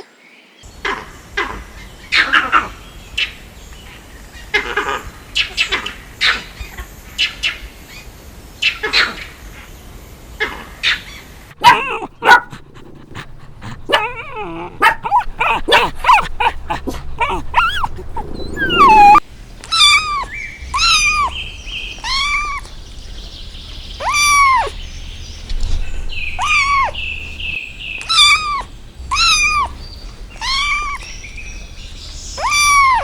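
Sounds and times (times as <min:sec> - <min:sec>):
dog high arched cries: 0:11.6 - 0:22.8, 0:24.0 - 0:24.8, 0:26.3 - 0:27.4, 0:28.0 - 0:31.7, 0:32.3 - 0:33.0
dog barking and yipping: 0:11.6 - 0:33.0.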